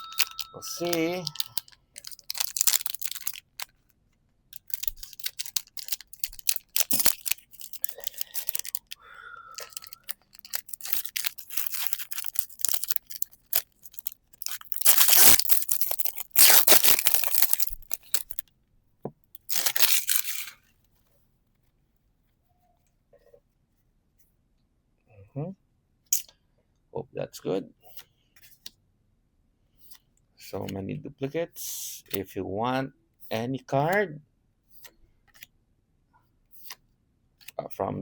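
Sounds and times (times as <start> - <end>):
cards rustling: 0.0 - 3.9, 4.5 - 9.0, 9.6 - 18.4, 19.4 - 20.6
foil wrapper crinkling and tearing: 0.1 - 3.8, 4.5 - 9.0, 9.6 - 18.4, 19.4 - 20.7.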